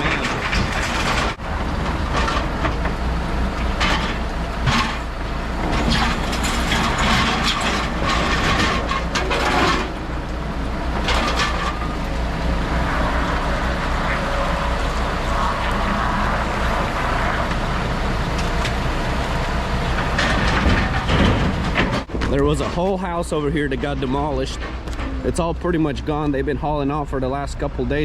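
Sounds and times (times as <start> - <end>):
debris clattering and scraping: 0.0 - 10.3, 10.9 - 25.5
heavy diesel machinery running: 0.0 - 28.0.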